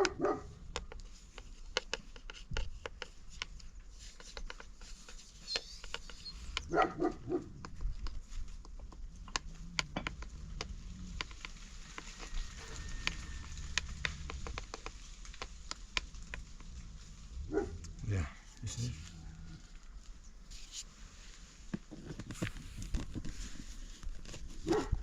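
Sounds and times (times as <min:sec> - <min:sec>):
dog barking: 0:00.0 - 0:00.6, 0:06.6 - 0:07.6, 0:17.4 - 0:17.8, 0:24.6 - 0:25.0.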